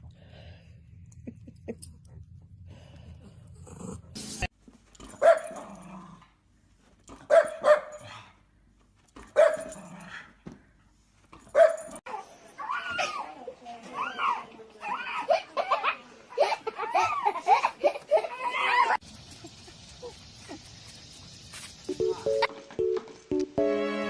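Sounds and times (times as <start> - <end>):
dog barking: 5.2 - 5.6, 7.3 - 8.1, 9.4 - 9.8, 11.5 - 12.0.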